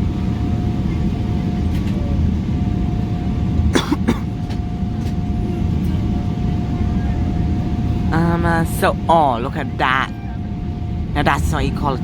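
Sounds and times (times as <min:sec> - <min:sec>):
aircraft cabin rumble: 0:00.0 - 0:12.0
thin steady whine: 0:00.0 - 0:12.0
person coughing: 0:03.7 - 0:04.4.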